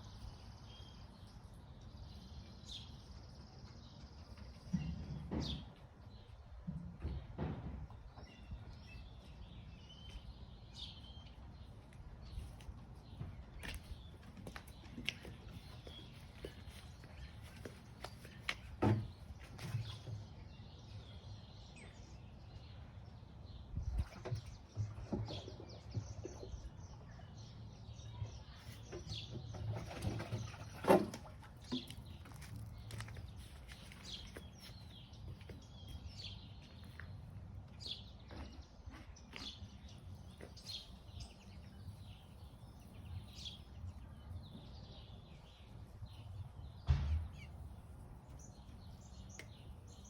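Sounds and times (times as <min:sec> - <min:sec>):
wild birds chirping: 0:07.9 - 0:50.0
sharp knock: 0:46.8 - 0:47.5.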